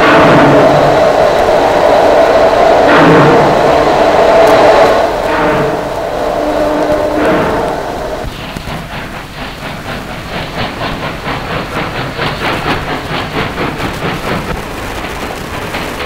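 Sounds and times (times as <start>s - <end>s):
low rumble of rolling carriages: 0.0s - 16.0s
train wheels clicking over rail joints: 0.0s - 16.0s.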